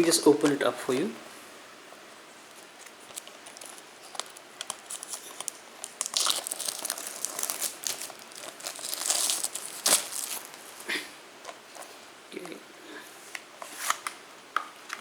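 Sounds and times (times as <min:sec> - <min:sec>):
plastic shrink wrap crinkling: 0:02.4 - 0:11.6.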